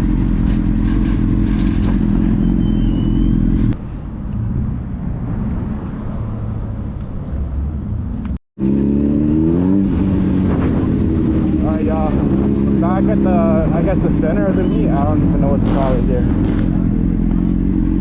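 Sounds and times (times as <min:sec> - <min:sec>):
engine revving: 0:08.6 - 0:18.0.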